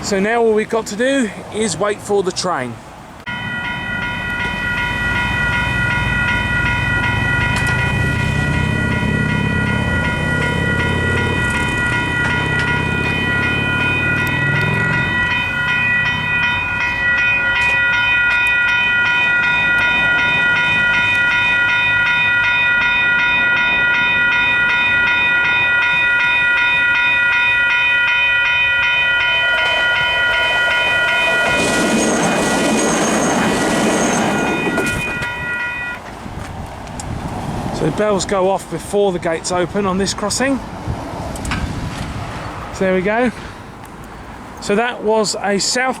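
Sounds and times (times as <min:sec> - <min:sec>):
train passing: 0:00.0 - 0:46.0
high train whine: 0:03.1 - 0:44.6
electronic warning bells ringing: 0:03.3 - 0:36.1.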